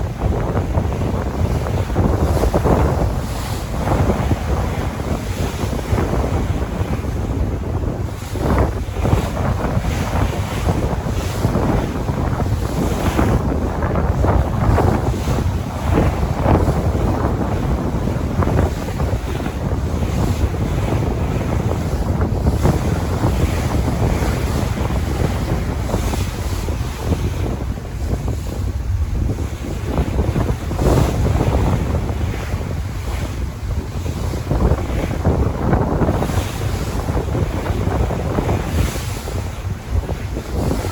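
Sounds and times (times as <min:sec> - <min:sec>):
sea waves breaking: 0:00.0 - 0:40.9
wind buffeting microphone: 0:00.0 - 0:40.9.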